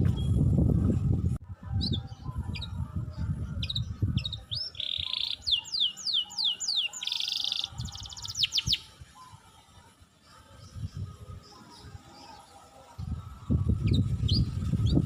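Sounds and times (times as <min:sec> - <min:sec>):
songbird trills and whistles: 0:03.6 - 0:09.4.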